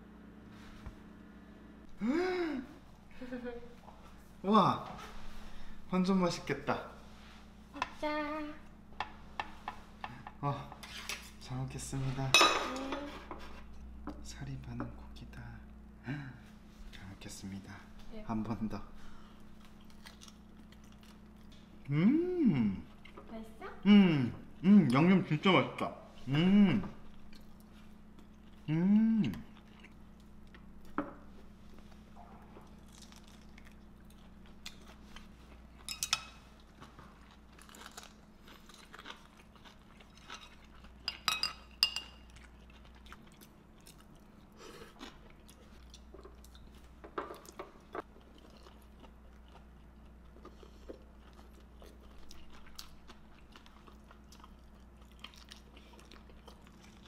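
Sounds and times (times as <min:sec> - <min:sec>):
person humming mm: 0:02.0 - 0:02.8, 0:21.9 - 0:22.8, 0:26.2 - 0:26.8, 0:28.7 - 0:29.5
person chewing and biting: 0:19.5 - 0:21.8, 0:32.6 - 0:35.9, 0:36.5 - 0:41.1, 0:42.2 - 0:57.0.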